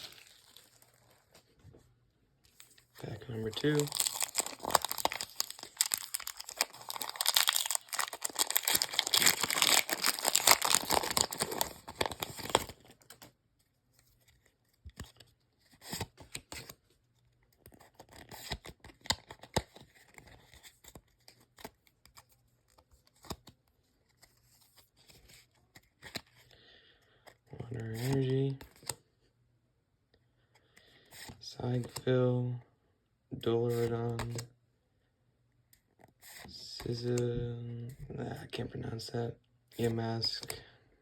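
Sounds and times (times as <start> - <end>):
foil wrapper crinkling and tearing: 0.0 - 1.3, 3.2 - 13.2
cards rustling and clicking: 2.5 - 13.4, 14.0 - 16.8, 17.5 - 26.5, 27.2 - 29.0, 33.7 - 34.4.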